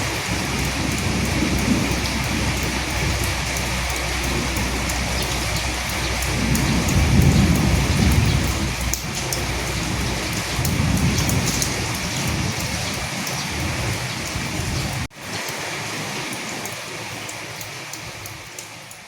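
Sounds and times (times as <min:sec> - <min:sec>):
thunder rumbling: 0:00.0 - 0:15.1
heavy rain hissing: 0:00.0 - 0:19.0.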